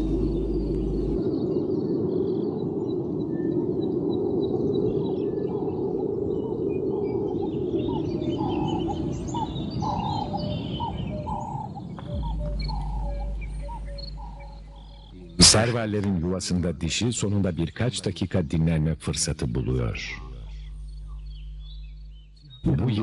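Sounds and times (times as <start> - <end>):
birds chirping and calling: 4.4 - 16.3, 19.3 - 23.0
low background noise: 12.1 - 23.0.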